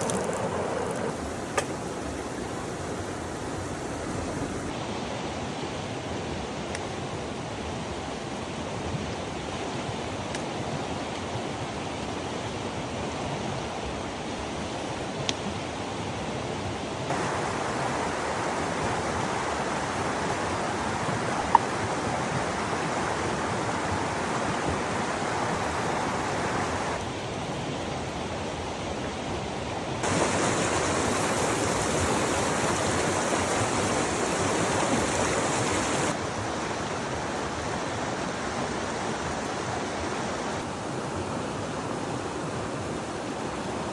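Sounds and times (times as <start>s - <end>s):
running water rushing: 0.0s - 6.7s, 17.1s - 41.6s.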